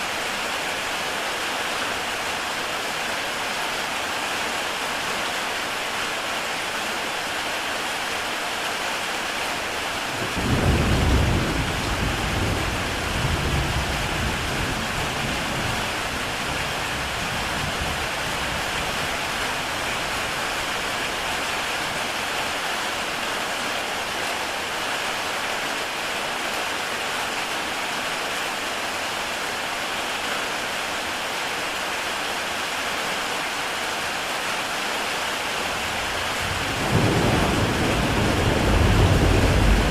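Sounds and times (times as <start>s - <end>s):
heavy rain on a tile roof: 0.0s - 39.9s
deep rumble of thunder: 10.2s - 18.4s, 35.8s - 39.9s.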